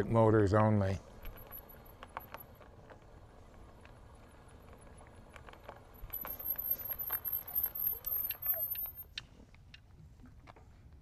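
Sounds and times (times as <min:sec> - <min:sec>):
bicycle low rumble: 0:00.0 - 0:11.0
bike ticking and clicking: 0:01.0 - 0:09.3.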